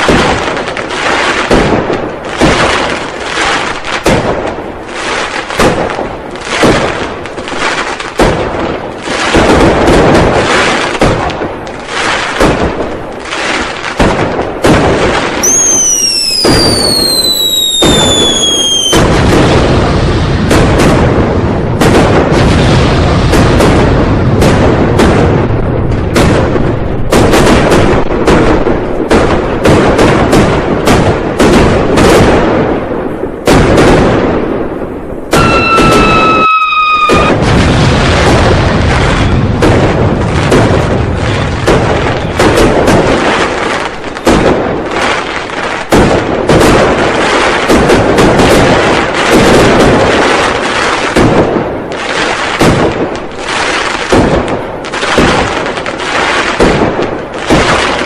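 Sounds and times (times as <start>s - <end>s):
firecrackers and fireworks booming: 0.0s - 58.0s
falling firework whistle: 15.4s - 19.1s, 35.3s - 37.6s.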